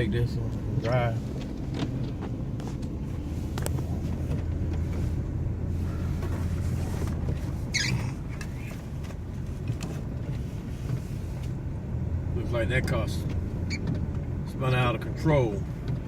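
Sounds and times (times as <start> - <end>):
car road and engine rumble: 0.0 - 16.0
high-pitched squeak: 7.7 - 8.2.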